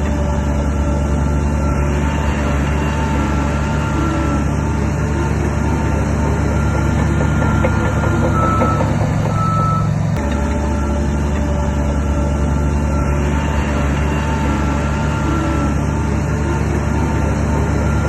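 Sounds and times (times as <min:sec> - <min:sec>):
diesel machinery engine running: 0:00.0 - 0:18.0
reversing alarm beeping: 0:05.8 - 0:15.8.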